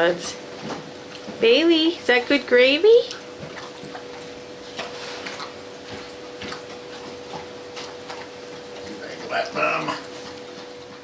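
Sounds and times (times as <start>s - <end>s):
dog eating from a bowl: 2.2s - 11.0s.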